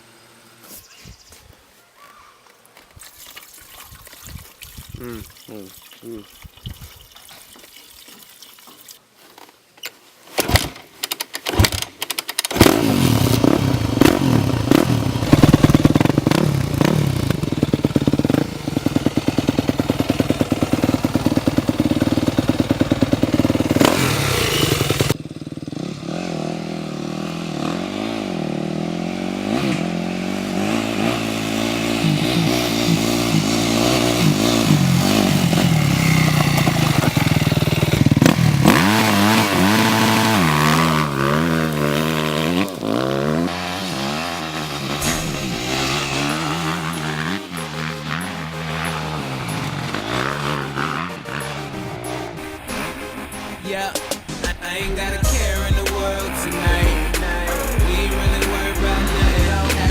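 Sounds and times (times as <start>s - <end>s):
sharp clicks and knocks: 9.8s - 12.6s
dirt bike engine revving: 11.5s - 59.9s.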